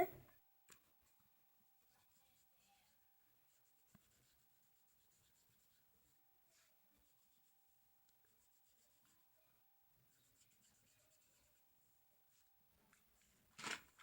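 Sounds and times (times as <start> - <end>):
felt-tip marker scratching on paper: 1.8 - 9.4, 10.0 - 12.4.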